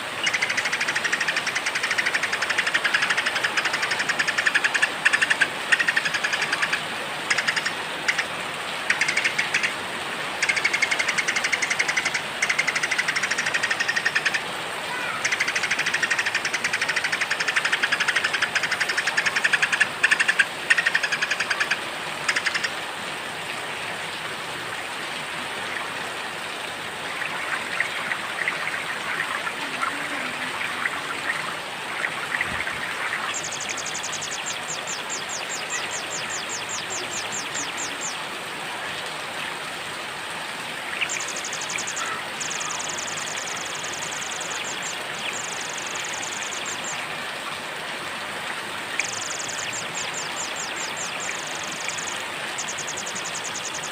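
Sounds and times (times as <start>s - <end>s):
steady rain: 0.0s - 53.9s
songbirds chirping: 27.1s - 38.3s.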